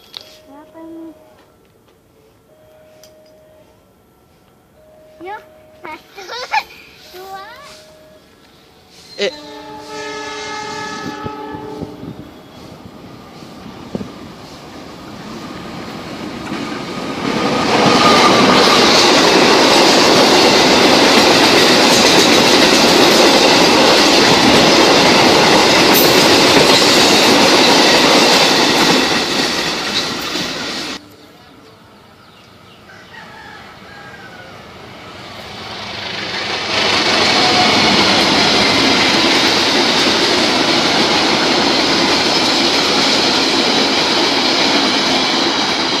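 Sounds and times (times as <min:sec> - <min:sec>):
train wheels clattering on rails: 0:10.8 - 0:31.0, 0:35.5 - 0:46.0.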